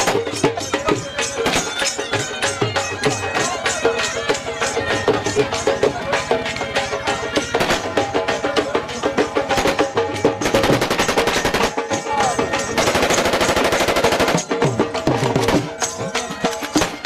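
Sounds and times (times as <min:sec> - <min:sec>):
folk music with percussion: 0:00.0 - 0:17.0
automatic gunfire: 0:12.9 - 0:14.5.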